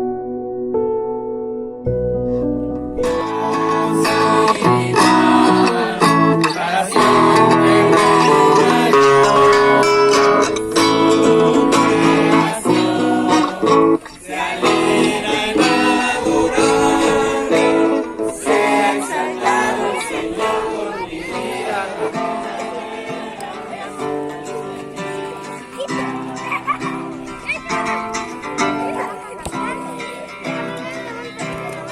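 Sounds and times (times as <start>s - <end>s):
acoustic guitar strummed: 1.9s - 31.9s
person singing: 2.3s - 26.8s.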